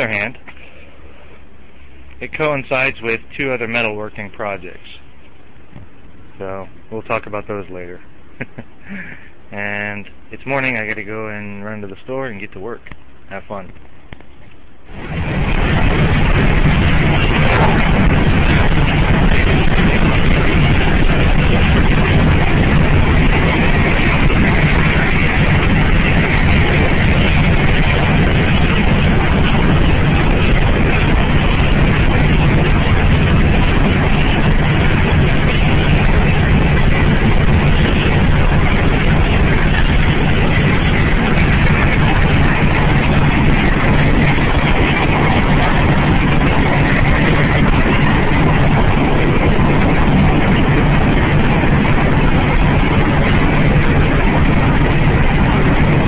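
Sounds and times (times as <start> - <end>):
road noise: 14.2 - 50.2
car engine: 14.9 - 31.6.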